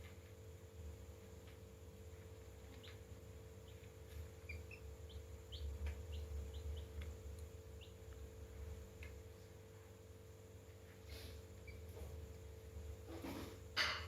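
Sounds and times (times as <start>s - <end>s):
steady low hum: 0.0s - 14.0s
chicks peeping: 1.4s - 9.6s, 11.0s - 12.4s.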